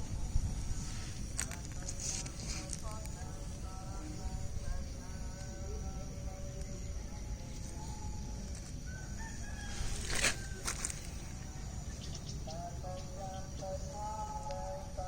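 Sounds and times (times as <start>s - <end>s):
rooster crowing: 8.8s - 11.8s.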